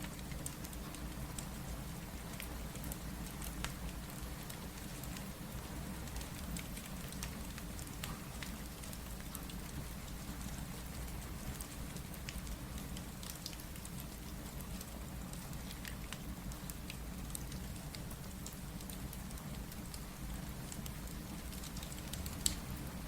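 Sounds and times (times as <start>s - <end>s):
steady rain: 0.0s - 23.0s
wood fire crackling: 10.8s - 23.0s.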